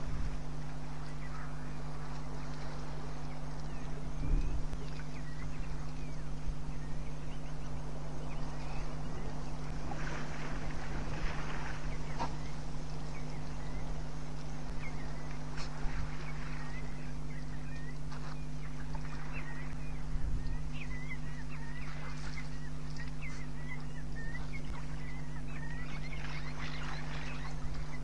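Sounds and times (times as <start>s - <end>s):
steady low hum: 0.0s - 28.0s
elephants splashing water: 8.6s - 14.2s.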